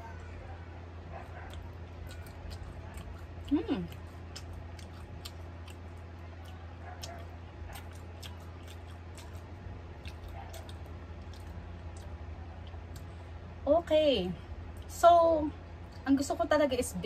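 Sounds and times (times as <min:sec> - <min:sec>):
steady low hum: 0:00.0 - 0:17.0
person chewing: 0:01.1 - 0:13.4.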